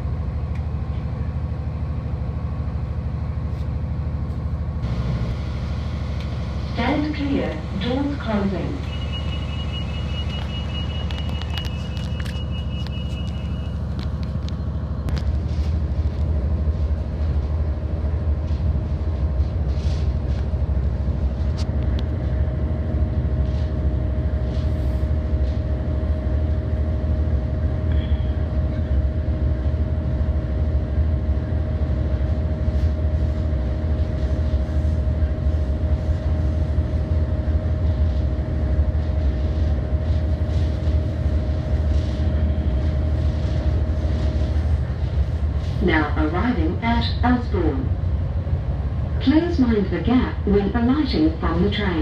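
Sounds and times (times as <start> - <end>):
constant hum: 0.0 - 52.0
train rumbling: 0.0 - 52.0
high steady tone: 8.8 - 13.9.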